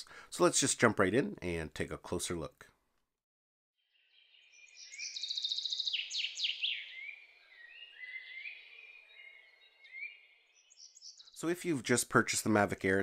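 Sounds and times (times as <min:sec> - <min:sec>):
birds singing: 0:03.8 - 0:11.5.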